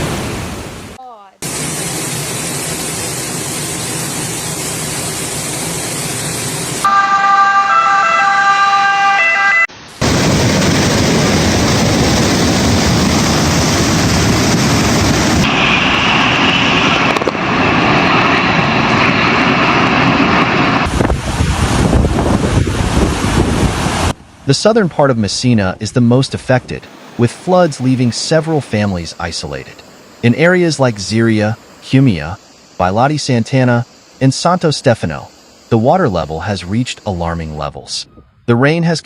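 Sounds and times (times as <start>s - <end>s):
siren with stepping tones: 6.8s - 9.7s
rushing floodwater: 26.4s - 37.4s.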